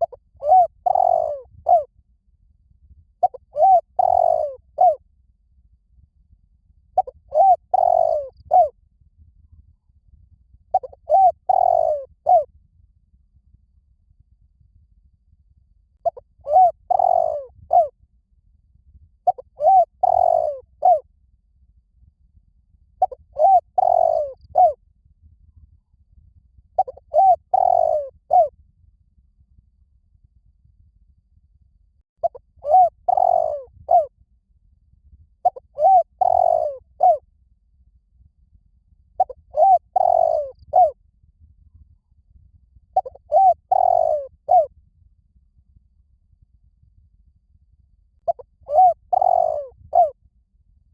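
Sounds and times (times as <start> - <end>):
dove cooing: 0.0 - 1.9, 3.2 - 5.0, 7.0 - 8.7, 10.7 - 12.5, 16.0 - 17.9, 19.3 - 21.0, 23.0 - 24.8, 26.8 - 28.5, 32.2 - 34.1, 35.4 - 37.2, 39.2 - 41.0, 43.0 - 44.7, 48.2 - 50.2.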